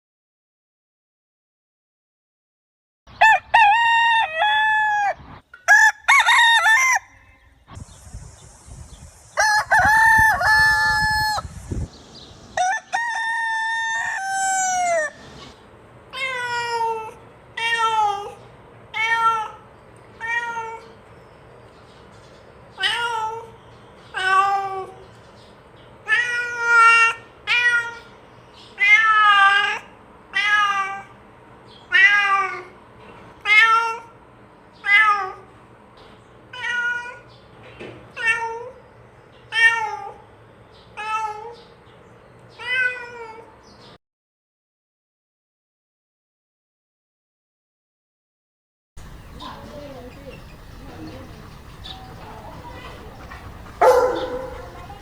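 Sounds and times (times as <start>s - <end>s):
rooster crowing: 3.2s - 7.5s, 9.4s - 11.5s, 12.6s - 15.3s, 53.8s - 55.0s
cat meowing: 36.5s - 37.2s, 42.6s - 43.5s.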